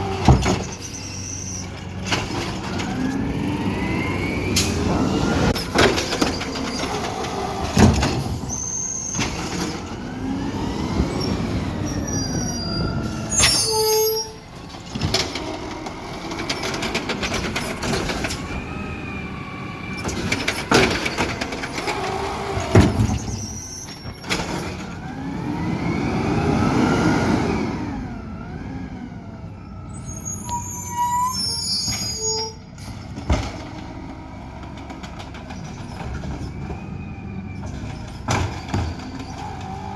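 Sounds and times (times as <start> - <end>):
diesel engine revving: 0.0 - 31.9, 32.6 - 39.9
high hydraulic squeals: 0.2 - 3.1, 4.6 - 9.9, 11.0 - 14.6, 19.9 - 24.8, 29.9 - 33.1.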